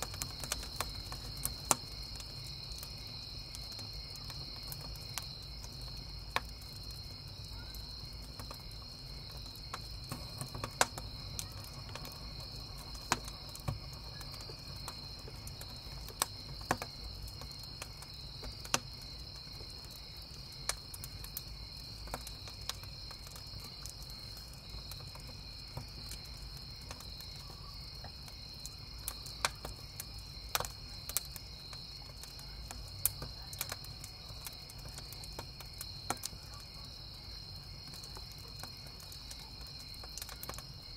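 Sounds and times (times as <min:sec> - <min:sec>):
campfire crackling and popping: 0:00.0 - 0:40.9
crickets chirping: 0:00.0 - 0:40.9.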